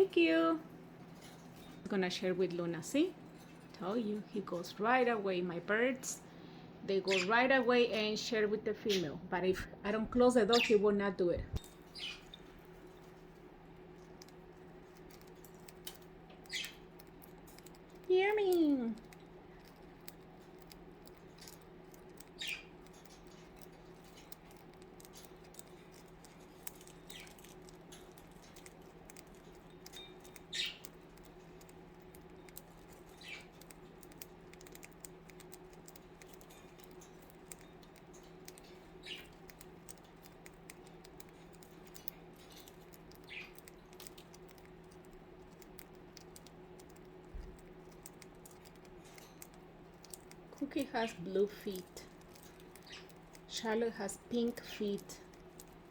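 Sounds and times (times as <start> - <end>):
steady low hum: 0.0 - 55.9
budgies cracking seed clicks: 11.6 - 55.9
budgie chirps: 22.2 - 22.8.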